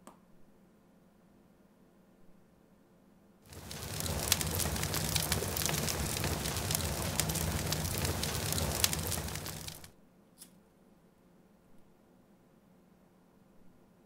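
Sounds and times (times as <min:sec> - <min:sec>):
fire crackling: 0:03.5 - 0:09.9
low rumble: 0:03.5 - 0:09.9.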